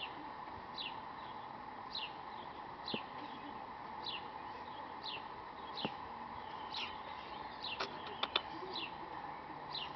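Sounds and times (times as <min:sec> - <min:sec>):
bird chirping: 0:00.0 - 0:09.9
faint steady hum: 0:00.0 - 0:09.9
sharp clicks: 0:07.8 - 0:08.5.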